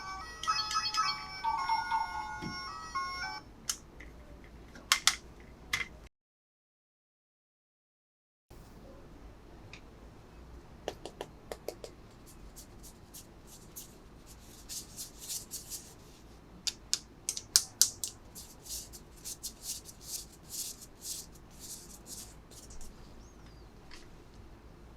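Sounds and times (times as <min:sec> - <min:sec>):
plastic packaging crackling: 0:12.3 - 0:16.0, 0:17.4 - 0:22.9.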